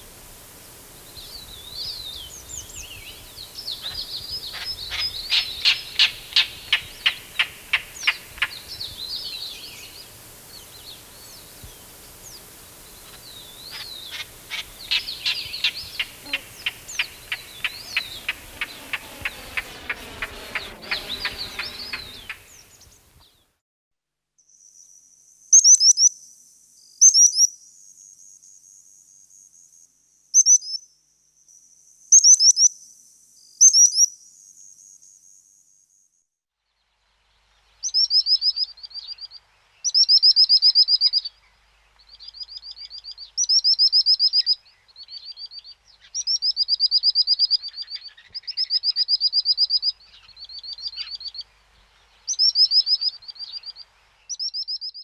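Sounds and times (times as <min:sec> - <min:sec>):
rapid high bird trills: 0:00.0 - 0:23.1
bird whistle and chirps: 0:00.9 - 0:23.0, 0:52.3 - 0:55.0
pulsing animal call: 0:13.1 - 0:22.7.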